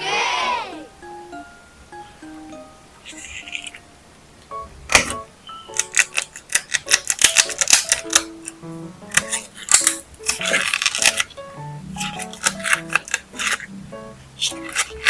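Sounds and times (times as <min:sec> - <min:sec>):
light plucked background music: 0:00.2 - 0:15.0
paper pieces clicking and tapping: 0:03.1 - 0:03.8, 0:04.9 - 0:11.4, 0:12.0 - 0:13.7, 0:14.4 - 0:15.0
paper rustling: 0:03.1 - 0:03.8, 0:04.9 - 0:11.4, 0:12.0 - 0:13.7, 0:14.4 - 0:15.0.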